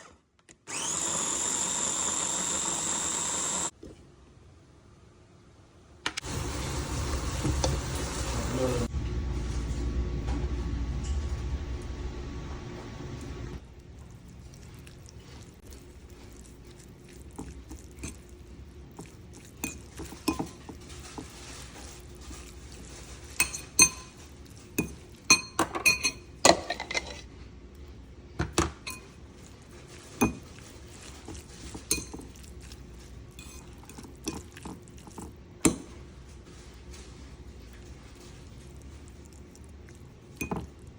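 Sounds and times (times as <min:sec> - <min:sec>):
dishes and utensils clinking: 0:19.0 - 0:27.3, 0:28.6 - 0:36.0.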